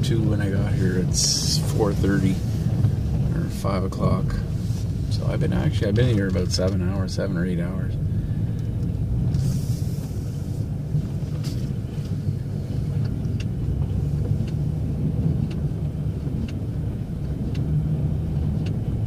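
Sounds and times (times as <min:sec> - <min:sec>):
truck engine drone: 0:00.0 - 0:19.0
short hiss: 0:09.4 - 0:10.6
faint ticks: 0:11.4 - 0:19.0.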